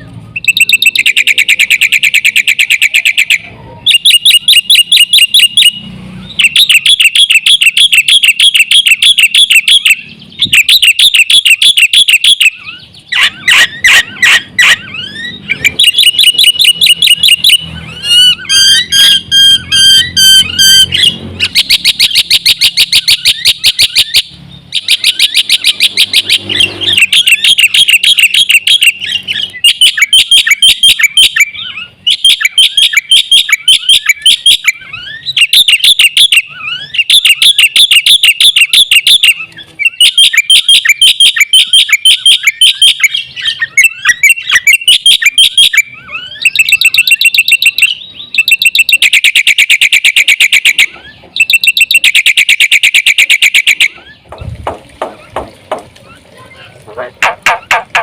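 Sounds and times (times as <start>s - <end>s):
bird whistled notes: 0.3s - 54.2s
myna chattering song: 52.8s - 58.0s.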